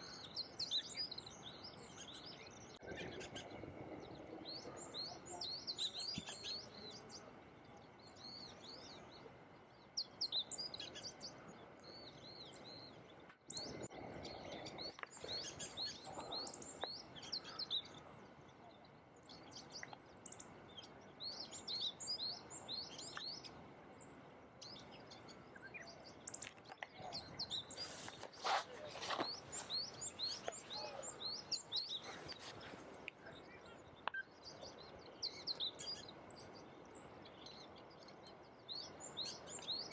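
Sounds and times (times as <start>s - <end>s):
faint outdoor hiss: 0.0s - 39.9s
songbirds chirping: 0.0s - 39.9s
brief rustle: 27.7s - 30.7s.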